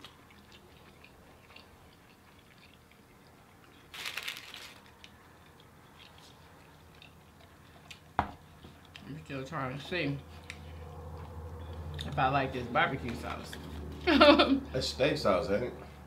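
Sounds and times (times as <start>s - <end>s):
chewing and mouth sounds: 0.0s - 3.9s, 4.9s - 9.3s, 10.2s - 12.2s.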